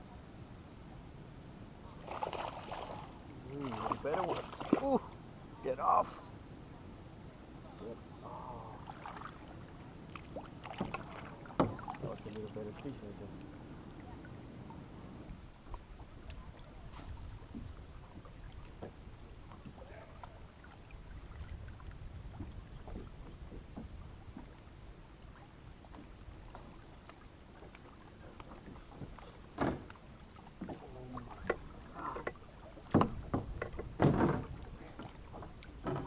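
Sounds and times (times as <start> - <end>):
wind and water rumble: 0.0 - 36.0
gear knocking against kayak: 31.4 - 34.6, 35.3 - 36.0.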